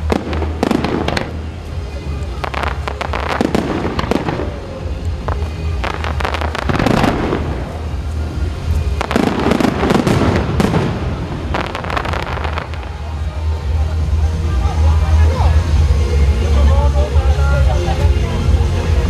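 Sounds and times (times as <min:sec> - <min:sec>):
fireworks bursting and crackling: 0:00.0 - 0:15.2.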